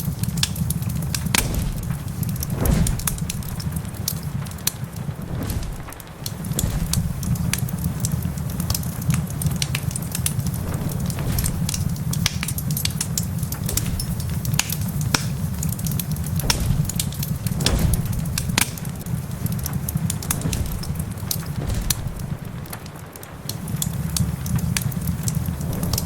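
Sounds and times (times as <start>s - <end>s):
rain hissing: 0.0s - 26.0s
wood fire crackling and popping: 0.0s - 26.0s
low rumble: 1.1s - 8.4s, 10.3s - 15.1s, 16.2s - 23.5s.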